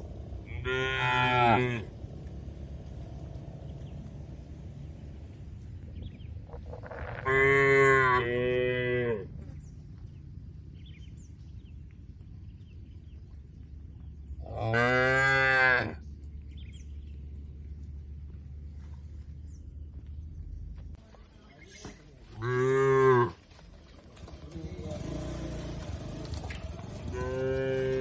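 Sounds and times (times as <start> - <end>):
cow mooing: 0.5 - 1.9, 6.7 - 9.3, 14.5 - 16.0, 22.4 - 23.4, 27.1 - 28.0.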